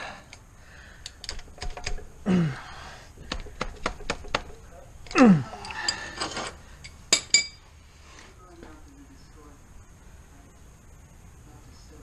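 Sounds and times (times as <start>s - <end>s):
hand tools and metal parts clicking: 0.0s - 7.6s.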